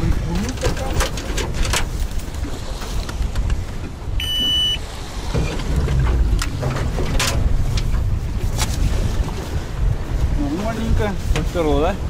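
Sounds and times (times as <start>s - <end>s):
waves slapping a boat: 0.0s - 12.0s
wind buffeting microphone: 0.0s - 12.0s
electronic beep: 4.2s - 4.8s.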